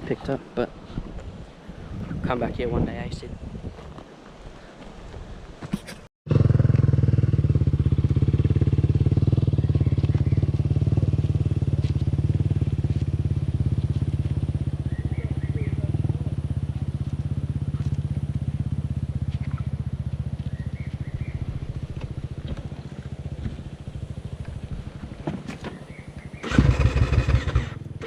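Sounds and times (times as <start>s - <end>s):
dirt bike engine running: 6.3s - 28.0s.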